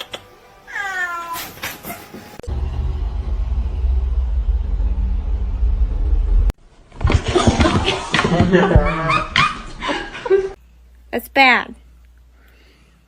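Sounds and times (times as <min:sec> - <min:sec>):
cat meowing: 0:00.7 - 0:01.5
steady low rumble: 0:02.4 - 0:06.6.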